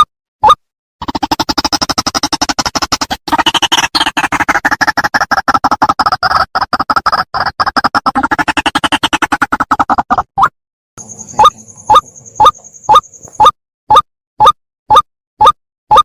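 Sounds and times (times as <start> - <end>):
waterhen calling harsh notes: 3.1 - 14.0.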